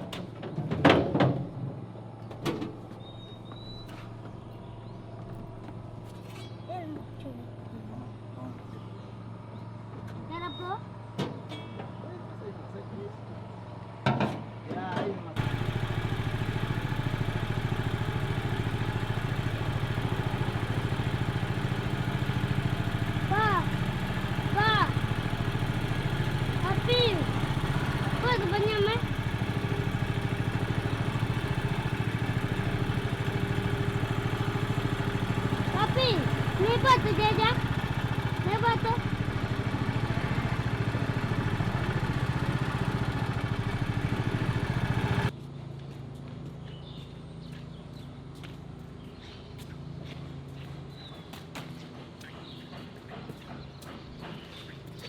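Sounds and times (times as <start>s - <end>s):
small boat engine running: 15.4s - 45.4s.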